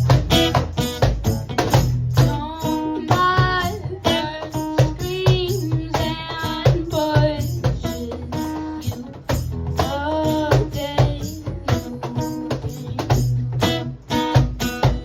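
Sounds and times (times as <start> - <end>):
acoustic guitar: 0.0 - 15.0
cajon beats: 0.0 - 15.0.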